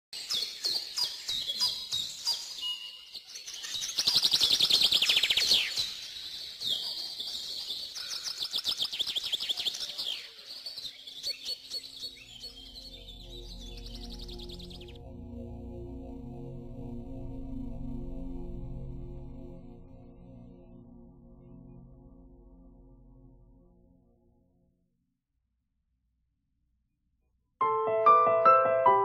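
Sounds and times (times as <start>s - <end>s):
songbird chirping and trilling: 0.2s - 15.0s.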